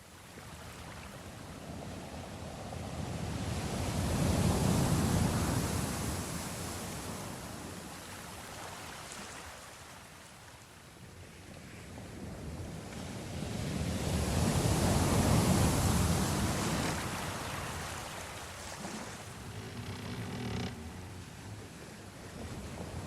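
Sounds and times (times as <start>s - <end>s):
sea waves washing: 13.0s - 23.0s.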